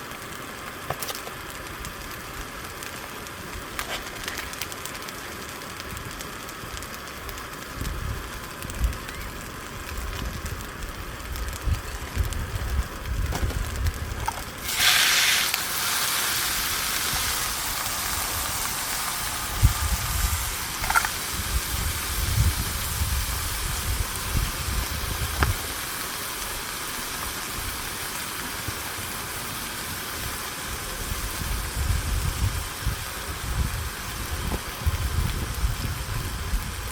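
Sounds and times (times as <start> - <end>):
loud steady hiss: 0.0 - 36.9
low rumbling gusts: 9.8 - 14.9, 17.0 - 25.7, 31.0 - 36.9.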